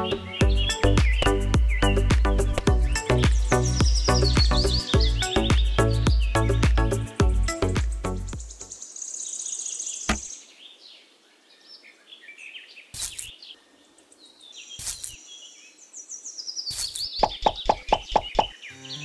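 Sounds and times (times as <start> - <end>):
birds chirping: 0.0 - 19.0
pitched taps: 2.1 - 2.8.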